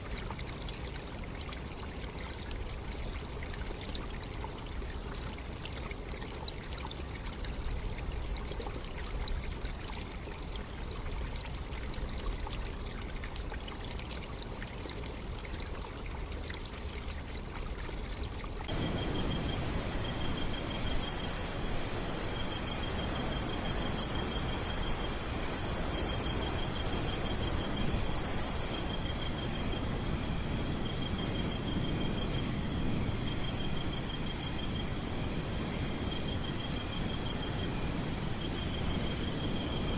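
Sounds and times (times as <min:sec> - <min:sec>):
faint running water: 0:00.0 - 0:39.9
chorus of insects buzzing: 0:18.7 - 0:39.9.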